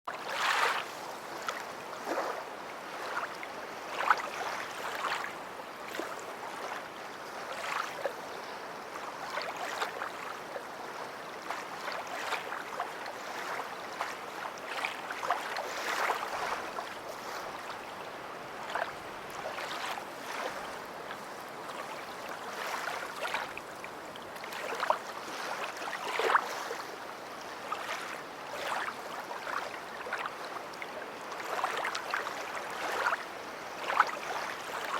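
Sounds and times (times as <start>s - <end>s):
sea water lapping and splashing: 0.1s - 34.9s.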